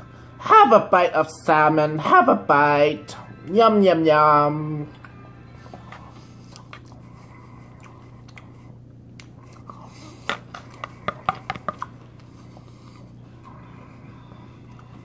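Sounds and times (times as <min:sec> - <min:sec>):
low hum: 0:00.0 - 0:15.0
person chewing: 0:04.9 - 0:15.0.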